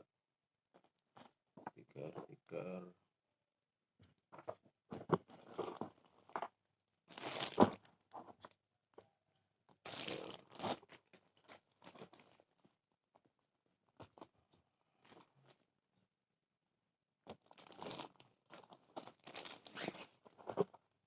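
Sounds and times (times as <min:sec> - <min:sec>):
packaging crinkling and tearing: 0:07.1 - 0:07.9, 0:09.8 - 0:10.8, 0:17.4 - 0:20.3.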